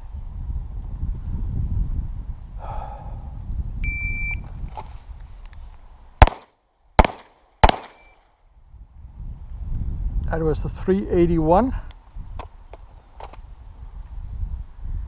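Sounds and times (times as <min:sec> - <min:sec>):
shot timer beep: 0:03.8 - 0:04.4
pistol shots: 0:06.2 - 0:08.1.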